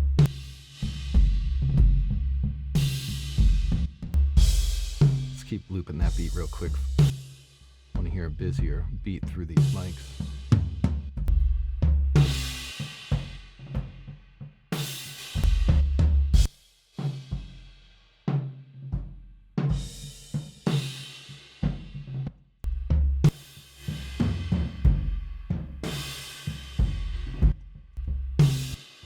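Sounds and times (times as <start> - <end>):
drum kit played with mallets: 4.4 - 7.2, 8.0 - 13.3.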